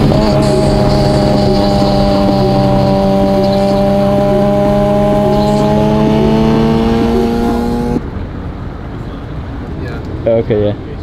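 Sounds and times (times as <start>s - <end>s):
car engine running: 0.0s - 8.6s
road noise: 0.0s - 11.0s.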